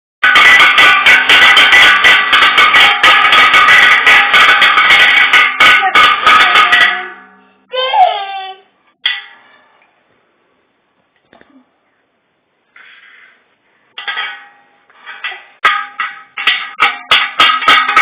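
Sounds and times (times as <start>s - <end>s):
instrument played with rapid strokes: 0.2s - 7.4s.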